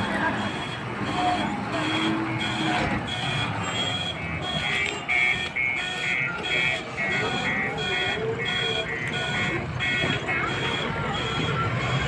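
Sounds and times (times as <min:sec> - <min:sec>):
diesel engine running: 0:00.0 - 0:12.0
faster beeping alarm: 0:00.0 - 0:12.0
reversing alarm beeping: 0:00.0 - 0:12.0.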